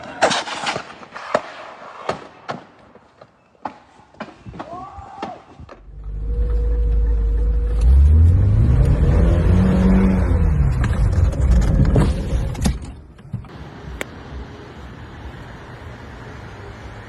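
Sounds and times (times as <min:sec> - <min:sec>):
vehicle engine revving: 0:05.9 - 0:12.0.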